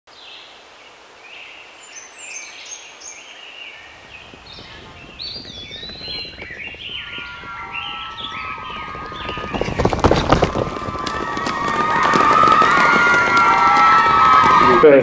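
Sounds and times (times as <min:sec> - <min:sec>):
small birds chirping: 0:00.1 - 0:10.6.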